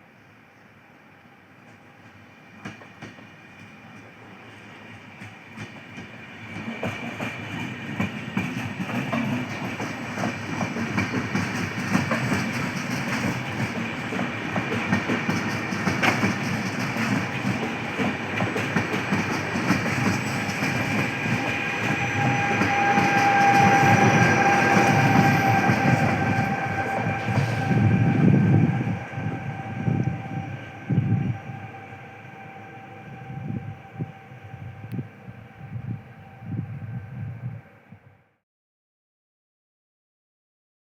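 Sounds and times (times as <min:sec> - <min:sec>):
train wheels rumbling and clattering: 0:01.6 - 0:35.2.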